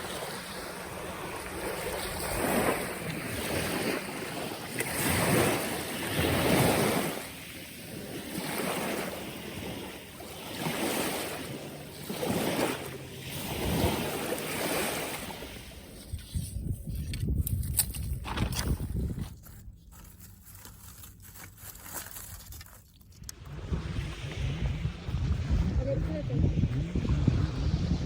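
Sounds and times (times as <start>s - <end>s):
sea waves washing onto shore: 0.0s - 16.1s.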